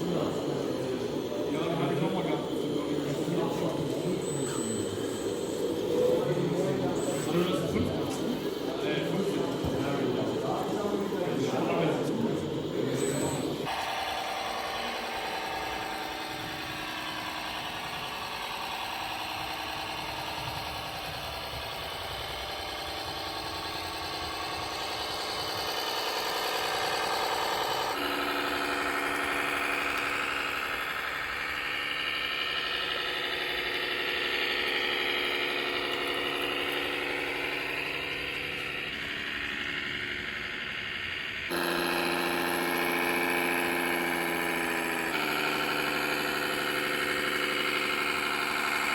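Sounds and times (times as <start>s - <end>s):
simulated diesel tractor engine: 0.0s - 48.9s.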